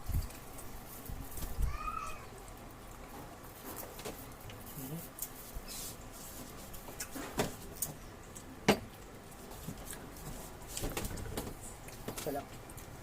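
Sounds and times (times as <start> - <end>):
chewing and mouth smacks: 6.8 - 10.2.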